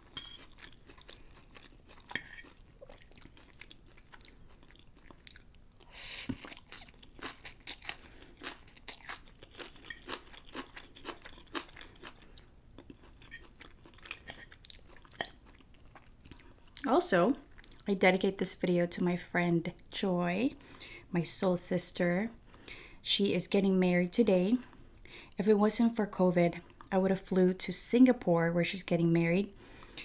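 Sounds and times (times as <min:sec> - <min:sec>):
close-miked chewing noodles: 0:00.5 - 0:16.9.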